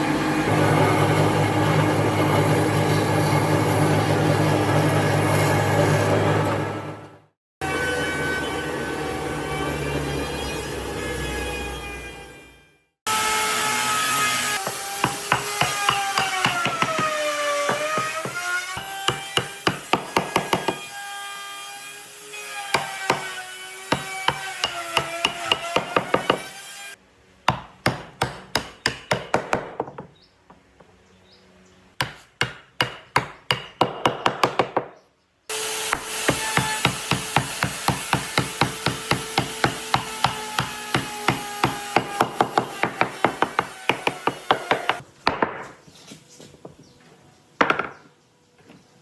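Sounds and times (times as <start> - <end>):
hammering on wood: 14.6 - 20.8, 22.7 - 26.5, 27.5 - 30.2, 32.0 - 35.0, 35.9 - 45.8.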